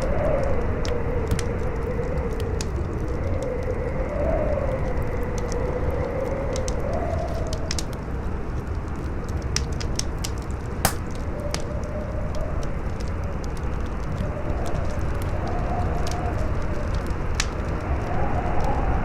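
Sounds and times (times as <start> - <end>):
howling wind: 0.0 - 9.5, 11.3 - 19.0
campfire crackling and popping: 4.9 - 18.8.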